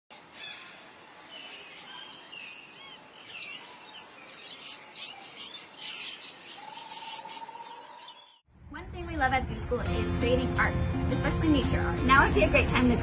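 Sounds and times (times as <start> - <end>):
outdoor background hiss: 0.1 - 8.3
birds chirping and calling: 0.2 - 8.4.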